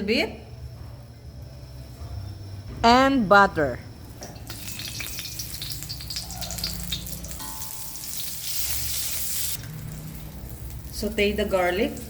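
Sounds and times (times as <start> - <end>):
butter and oil sizzling in a pan: 4.4 - 12.0.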